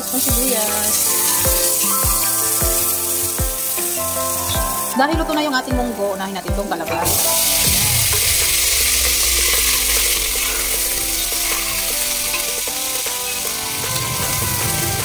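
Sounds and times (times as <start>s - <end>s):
squash sizzling in hot oil: 0.0s - 15.0s.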